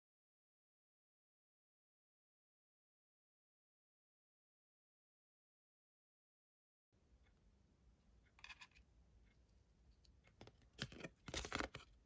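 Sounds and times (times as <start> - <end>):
cards clicking and scraping: 8.4 - 8.8, 10.3 - 12.0.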